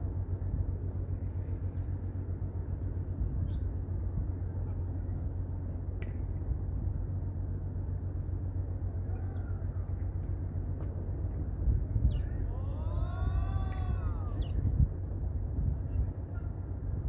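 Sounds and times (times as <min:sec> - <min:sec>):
wind buffeting microphone: 0:11.3 - 0:17.0.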